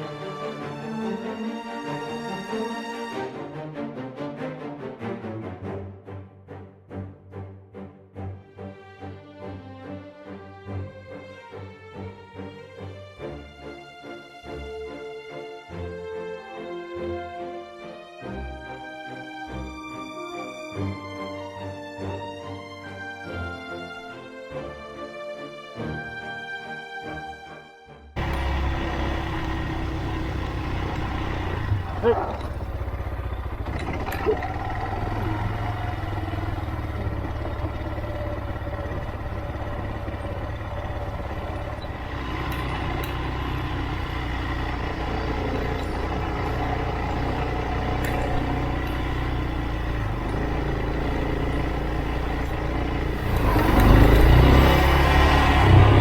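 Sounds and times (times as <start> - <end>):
motorcycle engine rumble: 28.2 - 56.0.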